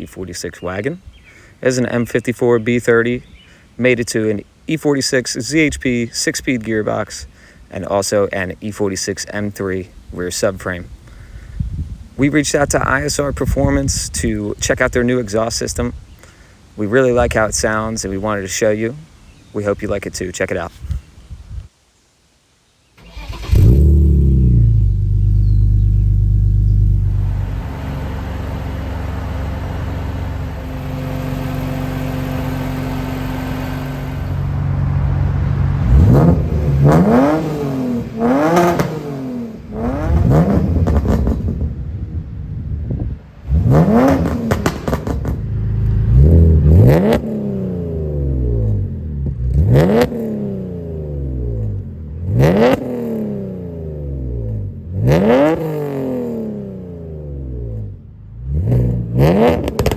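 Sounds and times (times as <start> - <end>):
car engine idling and revving: 23.0 - 59.9.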